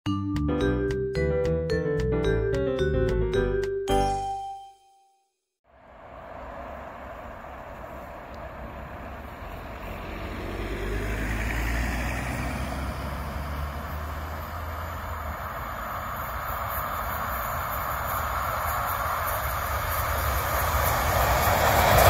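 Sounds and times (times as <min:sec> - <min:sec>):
train wheels rumbling on rails: 0:13.0 - 0:22.0.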